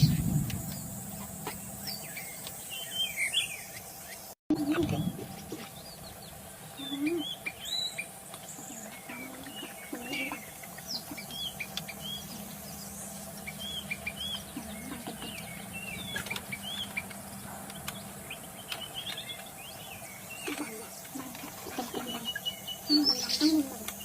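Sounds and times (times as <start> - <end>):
bird singing whistled chirps: 0.0 - 4.2, 4.9 - 17.2
steady low hum: 0.0 - 24.0.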